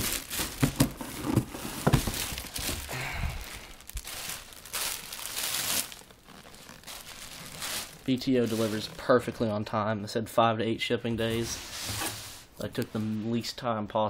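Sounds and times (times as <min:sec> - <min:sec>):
packaging crinkling and rustling: 0:00.0 - 0:09.6.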